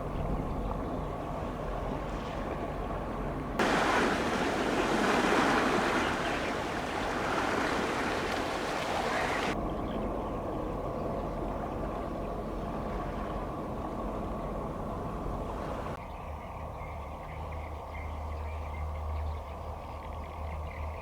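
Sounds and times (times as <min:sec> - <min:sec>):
ship engine rumble: 0:00.0 - 0:16.0
water noise: 0:00.0 - 0:16.0
wind: 0:00.0 - 0:21.0.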